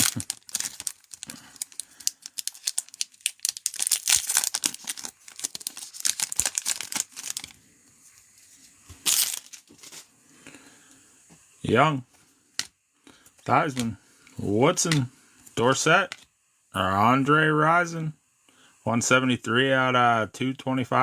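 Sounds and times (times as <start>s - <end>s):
wrapper tearing: 0.0s - 7.6s, 9.0s - 10.0s
wrappers crinkling: 0.0s - 7.6s, 9.0s - 10.1s.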